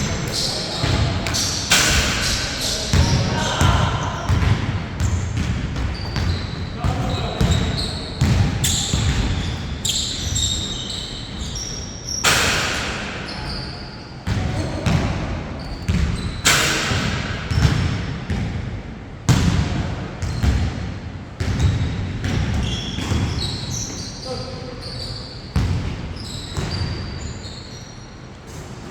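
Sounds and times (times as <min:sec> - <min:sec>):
shoe squeaks: 0:00.0 - 0:04.4, 0:05.0 - 0:14.8, 0:15.6 - 0:16.6, 0:22.5 - 0:28.5
basketball bouncing on court: 0:00.3 - 0:11.6, 0:14.2 - 0:23.9, 0:25.5 - 0:27.0.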